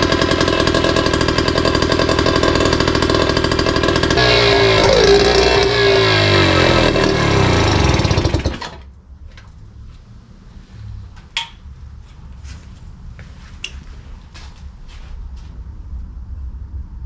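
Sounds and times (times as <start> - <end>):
outboard motor running: 0.0 - 8.8.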